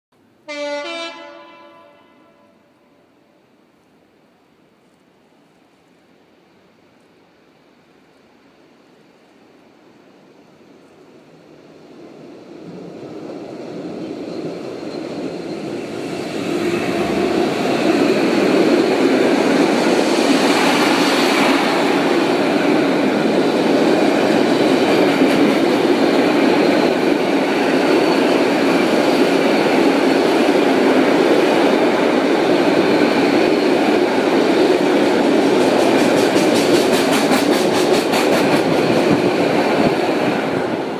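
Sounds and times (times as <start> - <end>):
freight train rumbling past: 0.2 - 3.6, 7.2 - 40.9
wheels clicking over rail joints: 35.4 - 39.2.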